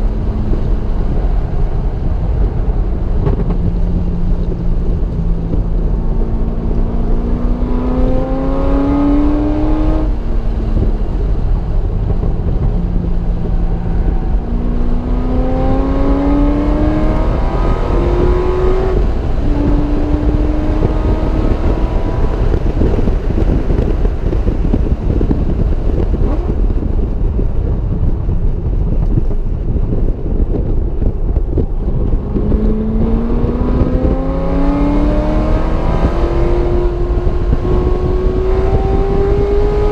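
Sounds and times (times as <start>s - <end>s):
car engine accelerating hard: 0.0s - 39.9s
tyre road noise: 0.0s - 39.9s
wind noise: 0.0s - 39.9s.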